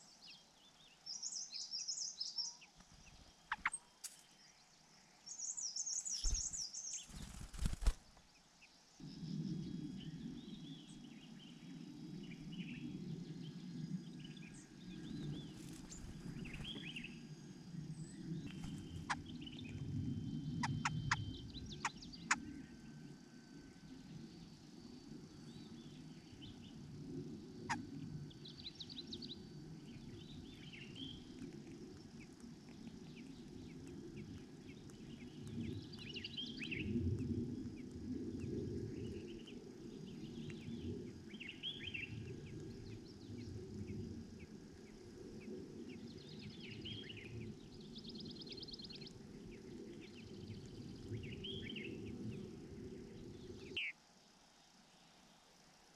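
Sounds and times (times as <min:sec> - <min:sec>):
small birds chirping: 0:00.0 - 0:23.0, 0:23.8 - 0:55.5
steady low rumble: 0:09.0 - 0:53.8.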